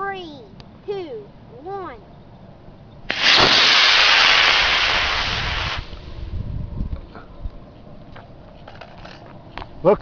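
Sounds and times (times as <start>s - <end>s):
rocket motor hissing: 3.1s - 6.3s.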